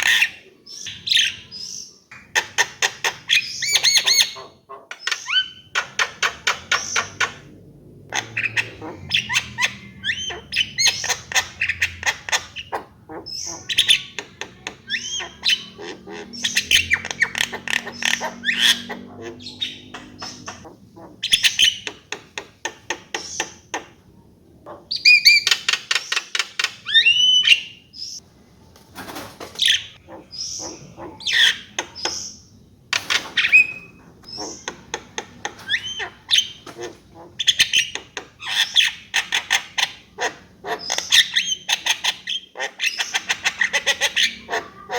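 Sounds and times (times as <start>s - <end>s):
bird singing with clicks and whistles: 24.9s - 28.2s, 29.8s - 36.7s.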